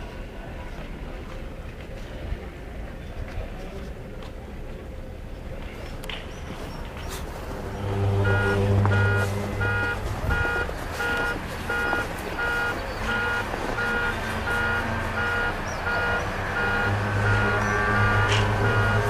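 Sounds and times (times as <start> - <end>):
repeating high-pitched beep: 7.9 - 19.0.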